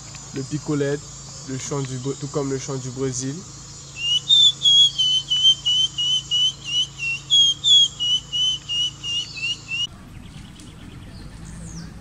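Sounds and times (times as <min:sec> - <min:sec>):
bird whistling notes: 0:03.8 - 0:12.0.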